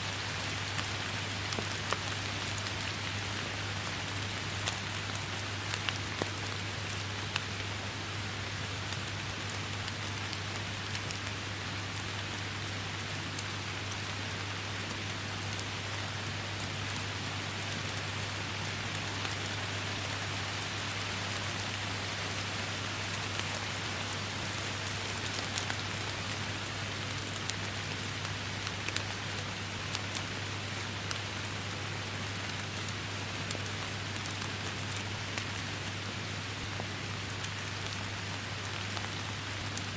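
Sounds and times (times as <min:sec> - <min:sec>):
rain hissing in forest: 0:00.0 - 0:39.9
raindrops ticking: 0:32.3 - 0:36.0, 0:37.1 - 0:39.9.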